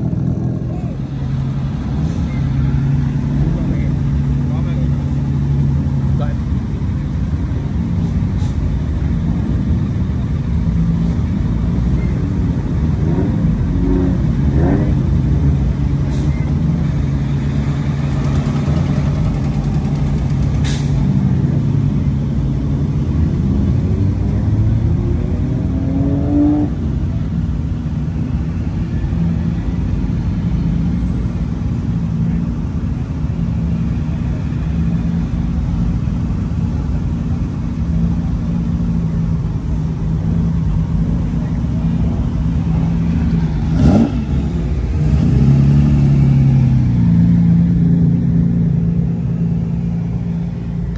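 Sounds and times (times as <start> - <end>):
low engine hum: 0.0 - 50.9
car engine revving: 17.4 - 21.8, 41.2 - 50.9.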